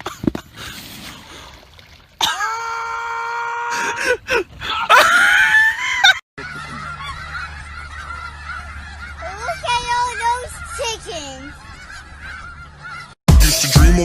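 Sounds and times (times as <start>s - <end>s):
person screaming: 2.2s - 4.2s.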